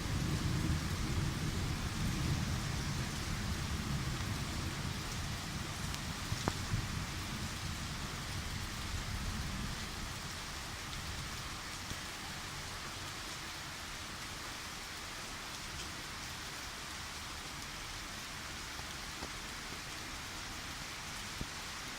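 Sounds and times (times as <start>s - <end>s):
low rumble of thunder: 0.0s - 11.6s
steady rain falling: 0.0s - 21.9s.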